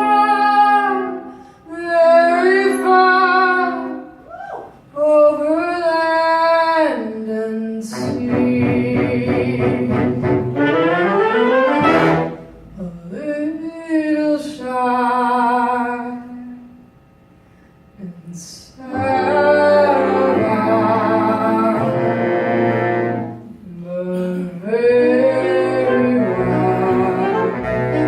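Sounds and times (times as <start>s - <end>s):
woman singing: 0.0s - 10.3s, 12.8s - 16.8s, 18.0s - 22.2s, 23.7s - 28.0s
jazz band with horn section: 9.7s - 12.5s, 19.1s - 23.5s, 25.2s - 28.0s.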